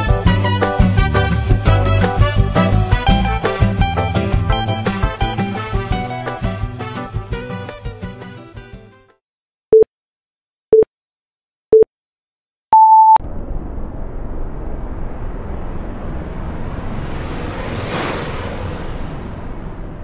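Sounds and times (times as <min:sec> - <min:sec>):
countdown clock beeps: 0:12.8 - 0:13.2
rush of noise: 0:13.2 - 0:20.0.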